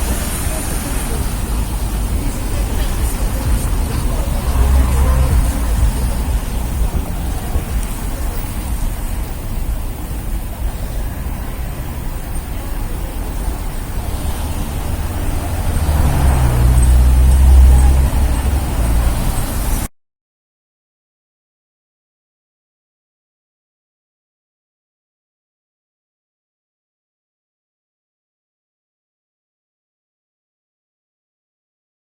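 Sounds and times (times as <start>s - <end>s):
heavy vehicle passing: 0.0s - 19.9s
traffic rumble: 0.0s - 19.9s.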